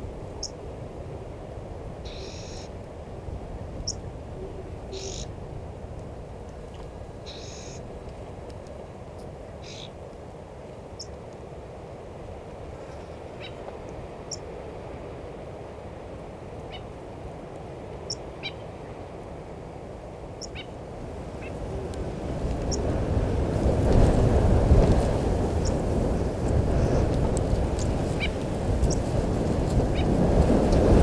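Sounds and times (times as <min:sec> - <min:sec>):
birds chirping: 0:04.9 - 0:05.3, 0:07.2 - 0:07.8, 0:09.6 - 0:10.0, 0:20.4 - 0:20.7
wind rushing: 0:21.0 - 0:31.0.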